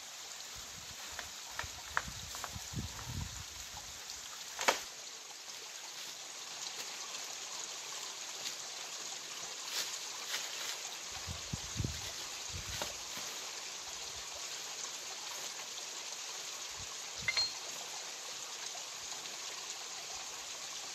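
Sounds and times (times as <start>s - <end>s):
water rushing over rocks: 1.2s - 20.9s.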